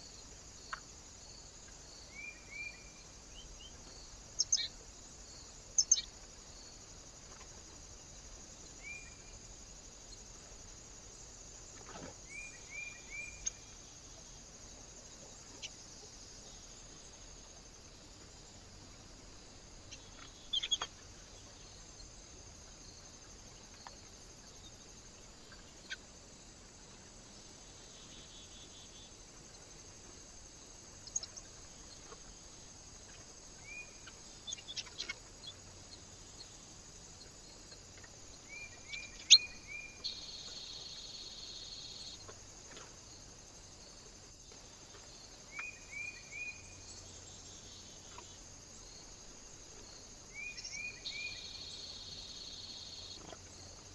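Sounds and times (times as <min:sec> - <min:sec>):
small birds chirping: 0:01.7 - 0:04.8, 0:05.7 - 0:06.2, 0:19.8 - 0:22.1, 0:33.0 - 0:36.5, 0:37.2 - 0:42.8.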